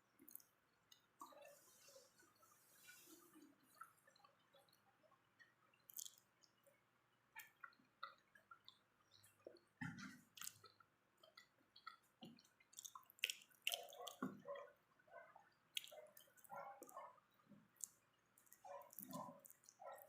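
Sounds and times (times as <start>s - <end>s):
person chewing: 0.2s - 1.3s, 5.8s - 6.5s, 10.0s - 14.4s, 15.7s - 17.0s, 17.7s - 20.0s
wet mouth clicks and smacks: 5.9s - 6.5s, 10.3s - 14.4s, 15.8s - 17.0s, 17.8s - 19.8s.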